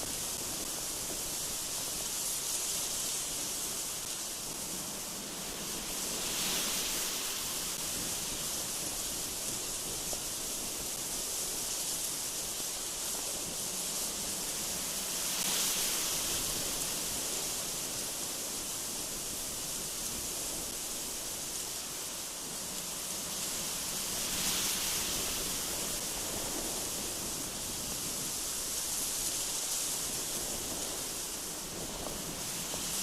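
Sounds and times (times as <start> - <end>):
gusty wind hissing: 0.0 - 33.0.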